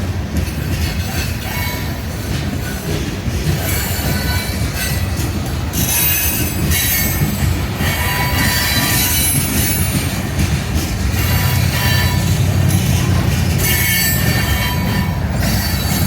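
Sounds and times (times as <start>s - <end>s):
train wheels rumbling on rail: 0.0s - 16.0s
high wheel squeal: 5.8s - 9.9s, 11.2s - 16.0s.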